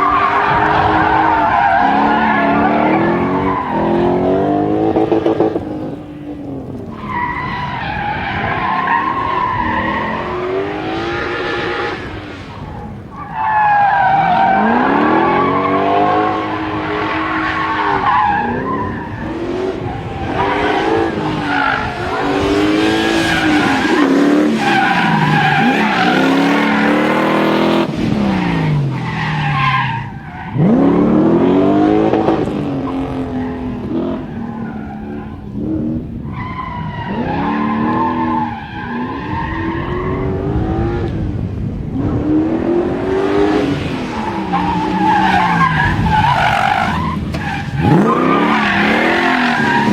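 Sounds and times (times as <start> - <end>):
tyres skidding: 0.0 - 49.9
car engine revving hard: 14.1 - 29.9, 30.5 - 34.3, 37.1 - 49.9.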